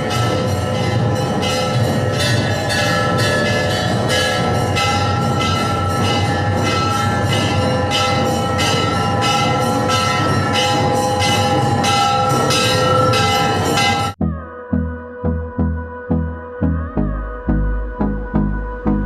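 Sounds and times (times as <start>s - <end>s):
bells ringing: 0.0s - 14.2s.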